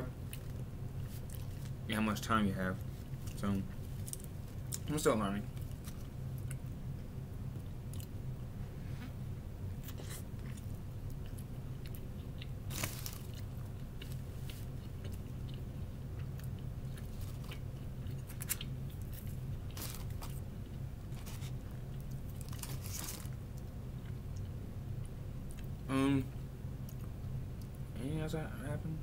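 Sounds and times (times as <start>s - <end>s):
steady low hum: 0.0s - 29.0s
person chewing a sandwich: 0.2s - 1.8s, 5.5s - 8.2s, 9.7s - 25.9s.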